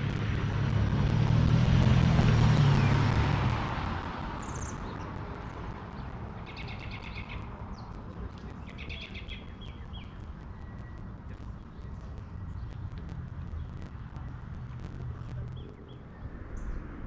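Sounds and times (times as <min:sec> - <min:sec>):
passing vehicle: 0:00.0 - 0:08.6
low steady outdoor hum: 0:00.0 - 0:17.0
songbirds calling: 0:04.2 - 0:14.3.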